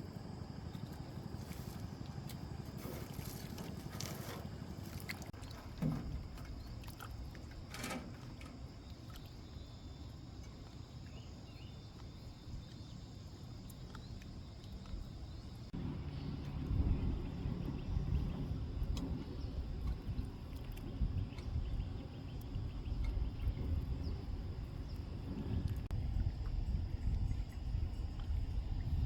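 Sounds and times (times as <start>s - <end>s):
water splashing: 0.8s - 9.6s
low rumble: 15.6s - 29.0s.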